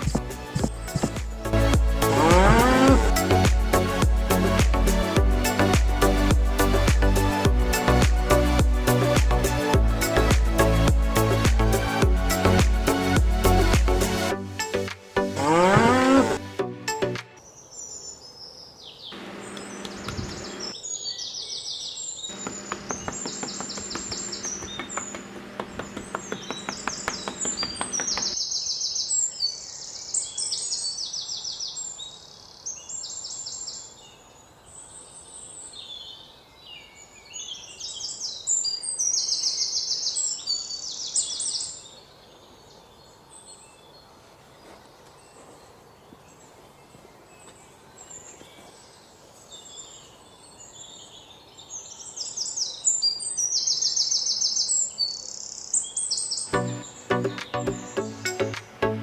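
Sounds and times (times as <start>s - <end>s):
low buzzy pitched sound: 1.3s - 14.2s
small birds chirping and singing: 17.4s - 59.0s.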